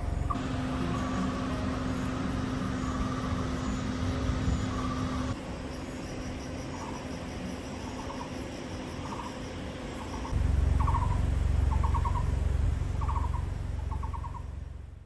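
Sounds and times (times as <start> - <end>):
animal trilled call: 10.1 - 14.6
low rumble: 10.3 - 15.0.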